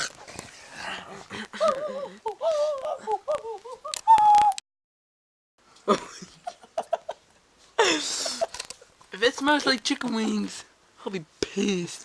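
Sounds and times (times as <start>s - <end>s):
person making warbling hooting noise: 1.6s - 4.6s.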